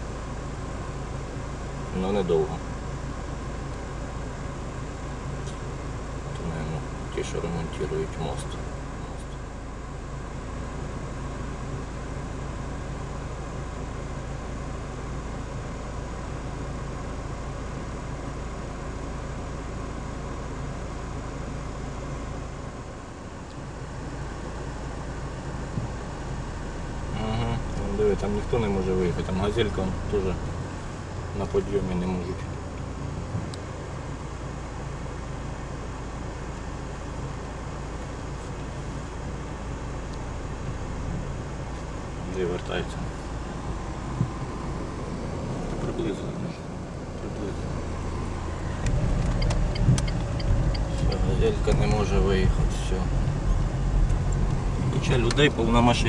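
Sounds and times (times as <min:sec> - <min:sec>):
car engine hum: 0:00.0 - 0:56.0
road noise: 0:00.0 - 0:56.0.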